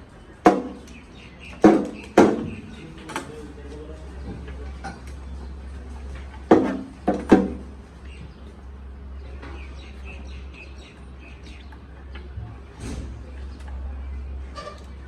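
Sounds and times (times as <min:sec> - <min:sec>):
small birds chirping: 0:00.0 - 0:15.0
sharp loud knocks: 0:00.4 - 0:00.9, 0:01.6 - 0:02.7, 0:06.5 - 0:07.7.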